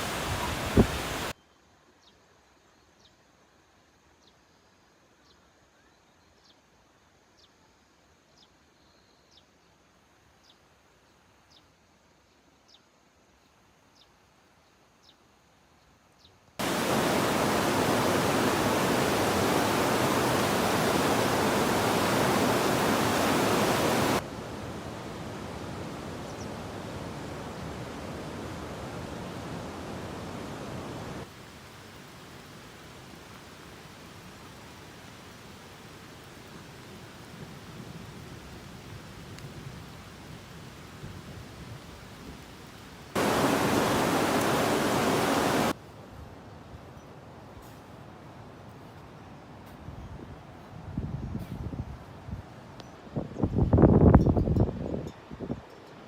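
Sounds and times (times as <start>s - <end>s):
water rushing: 0.0s - 1.3s, 16.6s - 36.8s, 43.1s - 45.8s.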